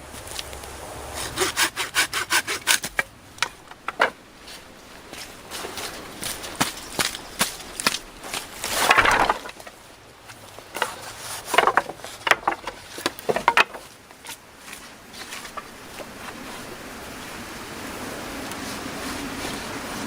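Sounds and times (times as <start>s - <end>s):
brush rustling: 0.0s - 20.0s
wood knocking and snapping: 2.4s - 4.2s, 6.6s - 14.4s.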